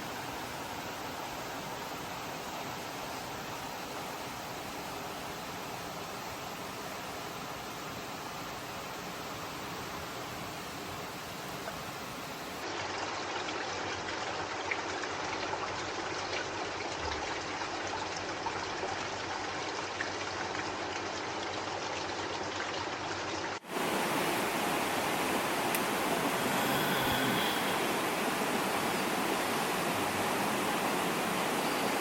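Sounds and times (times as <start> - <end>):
water rushing: 0.0 - 12.7, 23.6 - 32.0.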